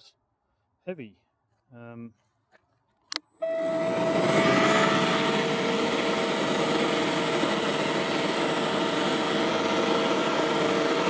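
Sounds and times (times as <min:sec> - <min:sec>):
electric motor whine: 0:03.4 - 0:11.0
fan air rushing: 0:03.4 - 0:11.0.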